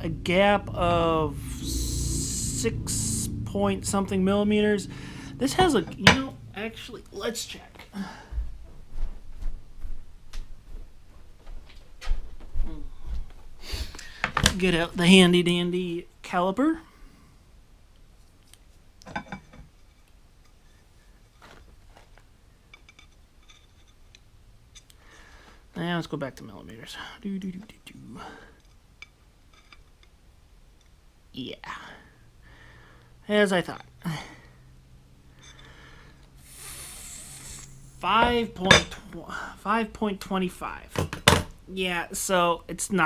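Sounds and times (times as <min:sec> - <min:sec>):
man exhaling breathily: 0:04.9 - 0:05.4, 0:35.6 - 0:38.0.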